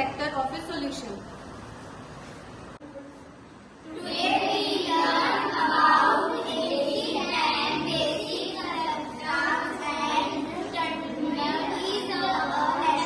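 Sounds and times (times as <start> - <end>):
children singing: 3.9 - 13.0.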